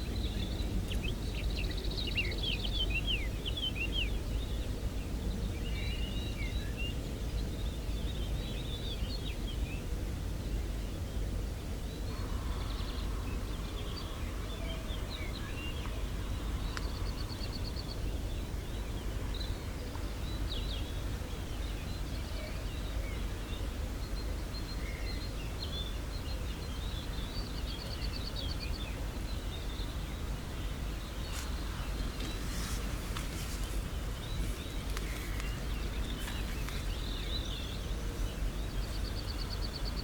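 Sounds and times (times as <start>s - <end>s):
low background rumble: 0.0s - 40.0s
small songbirds chirping: 0.0s - 40.0s.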